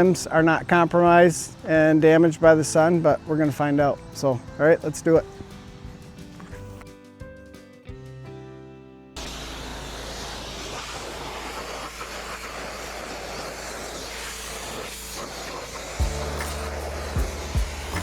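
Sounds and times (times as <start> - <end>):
background music: 0.0 - 9.3, 15.7 - 18.0
pressure washer spraying water: 9.2 - 18.0.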